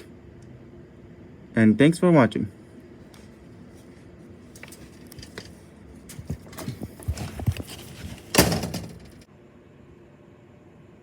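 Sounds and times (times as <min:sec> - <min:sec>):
light knocks and clatter: 0:04.6 - 0:09.3
loud thud: 0:08.3 - 0:09.2.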